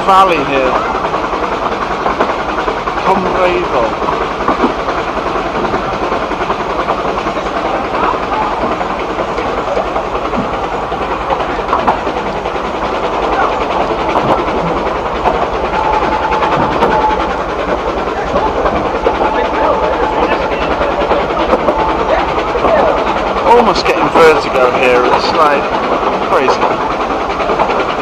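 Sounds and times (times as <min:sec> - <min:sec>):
clatter over rail joints: 0:00.0 - 0:28.0
train wheels rumbling: 0:00.0 - 0:28.0
high squeal: 0:15.6 - 0:17.4.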